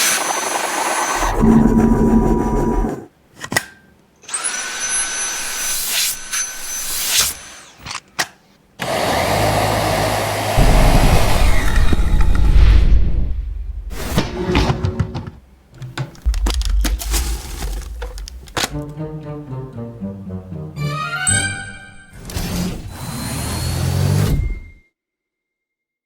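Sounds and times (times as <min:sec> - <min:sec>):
handheld vacuum running: 0:00.0 - 0:01.7, 0:08.8 - 0:12.4
high whine: 0:10.6 - 0:14.3.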